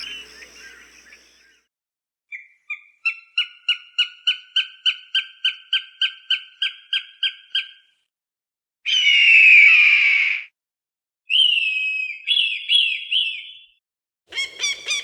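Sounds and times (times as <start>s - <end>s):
falcon calling: 0.0s - 1.4s, 14.3s - 15.0s.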